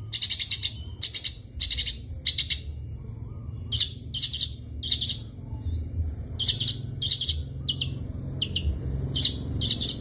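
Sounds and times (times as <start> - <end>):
bird harsh chattering calls: 0.0 - 2.7, 3.7 - 5.3, 6.4 - 10.0
steady low hum: 0.0 - 10.0.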